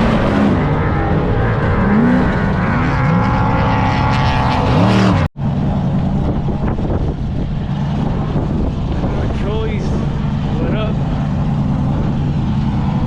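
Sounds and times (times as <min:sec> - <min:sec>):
car engine revving hard: 0:00.0 - 0:05.3, 0:10.0 - 0:13.0.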